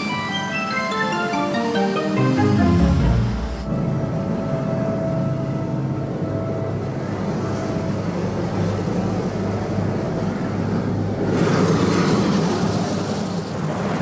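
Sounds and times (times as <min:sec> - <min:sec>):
helicopter drone: 0:00.0 - 0:14.0
loud rushing hiss: 0:01.9 - 0:03.7.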